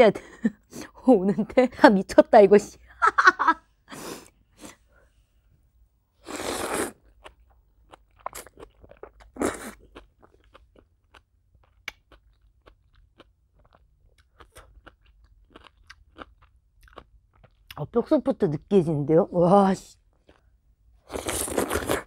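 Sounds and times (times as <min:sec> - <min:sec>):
closed-mouth chewing: 0:06.3 - 0:17.8
noodles slurping: 0:21.0 - 0:22.0.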